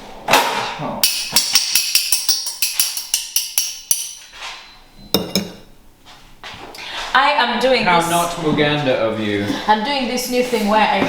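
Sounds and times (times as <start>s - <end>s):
tableware clatter: 1.0s - 5.7s
tableware clinking: 1.0s - 5.8s.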